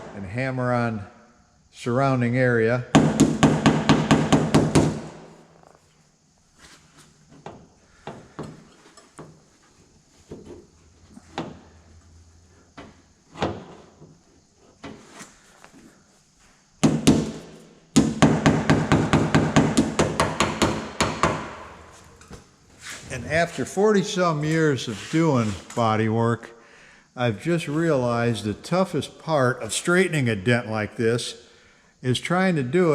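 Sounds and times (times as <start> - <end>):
hammer striking car door metal: 3.0 - 5.2, 18.0 - 21.8.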